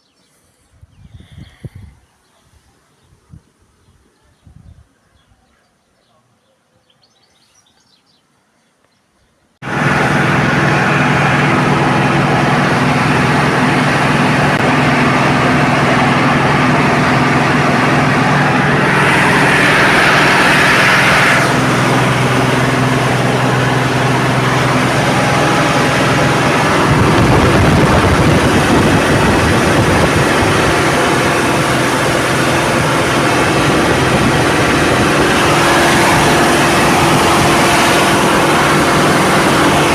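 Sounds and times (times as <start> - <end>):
diesel engine running loudly: 9.6 - 39.9.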